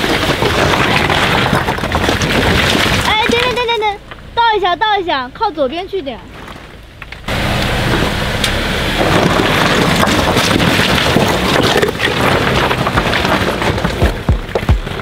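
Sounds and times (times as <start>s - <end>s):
car engine running: 1.2s - 15.0s
low thumps: 6.2s - 15.0s.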